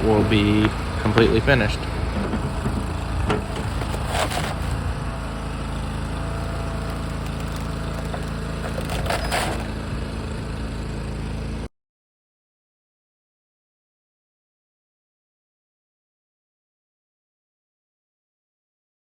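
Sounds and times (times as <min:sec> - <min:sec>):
loader engine running: 0:00.0 - 0:11.7
brief scraping noises: 0:02.1 - 0:04.8, 0:07.5 - 0:09.7.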